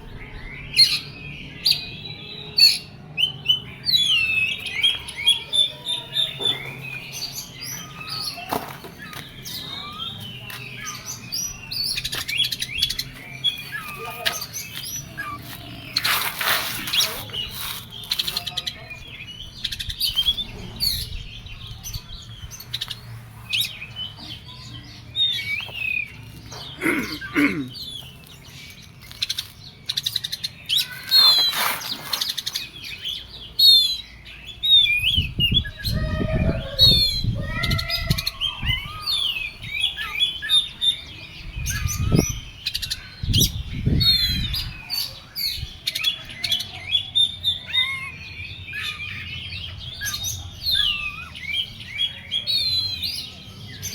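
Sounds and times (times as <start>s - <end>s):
low rumbling noise: 0.0s - 1.6s.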